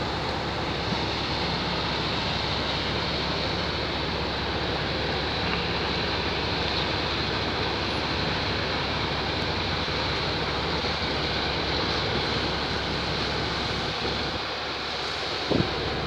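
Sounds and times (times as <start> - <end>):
engine drone: 0.0 - 16.0
wind on microphone: 15.5 - 15.8.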